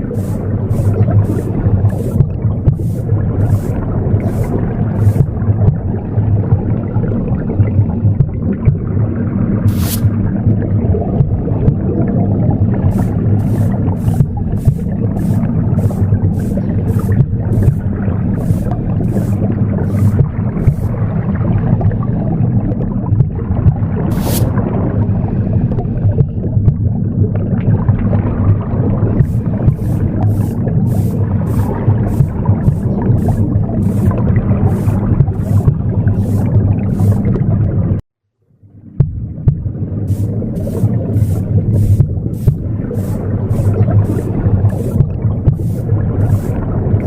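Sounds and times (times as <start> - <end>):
broom sweeping: 0.0 - 5.4, 9.7 - 10.2, 12.9 - 21.0, 24.1 - 24.6, 29.2 - 37.4, 40.1 - 46.6
womb sound low pulsing whoosh: 0.0 - 38.0, 38.9 - 47.0.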